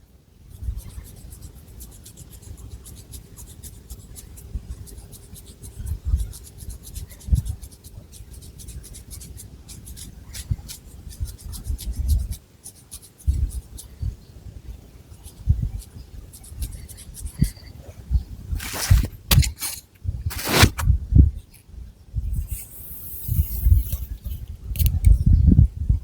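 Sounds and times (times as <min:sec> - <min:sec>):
fingernails scratching hair: 0:18.6 - 0:20.9.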